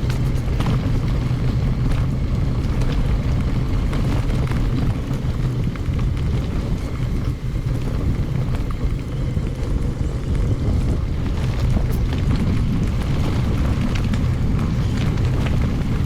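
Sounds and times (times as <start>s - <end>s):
heavy wind rumble on microphone: 0.0s - 16.0s
mountain bike rattling over gravel: 0.0s - 16.0s.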